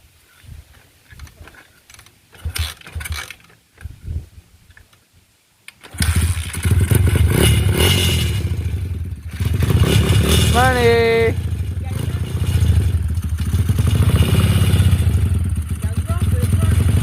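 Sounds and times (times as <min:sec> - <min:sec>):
dirt bike engine starting: 0:02.3 - 0:03.5, 0:05.7 - 0:17.0.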